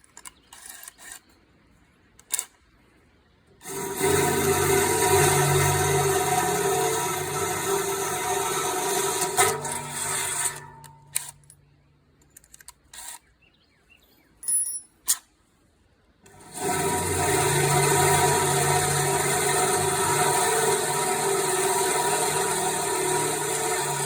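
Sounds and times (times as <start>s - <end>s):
power tool motor running: 3.6s - 11.5s, 16.3s - 24.0s.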